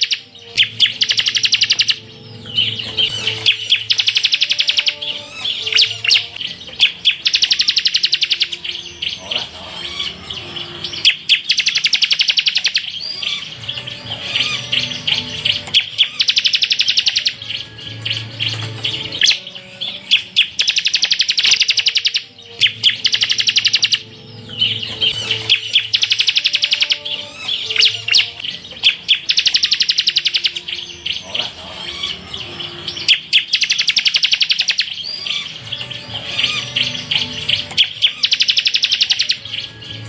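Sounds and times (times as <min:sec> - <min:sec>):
bird rattling trills: 0:00.0 - 0:02.0, 0:02.6 - 0:08.7, 0:11.0 - 0:13.5, 0:15.5 - 0:24.0, 0:24.6 - 0:31.1, 0:33.0 - 0:35.6, 0:36.3 - 0:39.6
bird chirps and whistles: 0:00.0 - 0:09.2, 0:10.9 - 0:31.3, 0:32.9 - 0:39.7.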